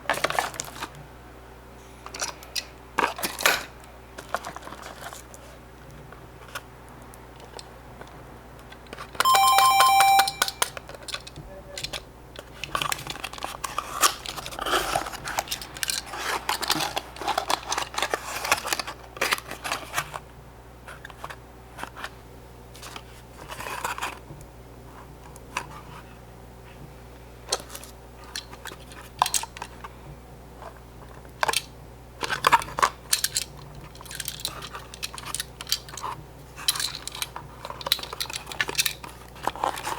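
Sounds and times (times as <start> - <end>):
toy cars clicking and tapping: 8.9 - 18.9, 31.4 - 39.9
bell-like chime: 9.3 - 10.6.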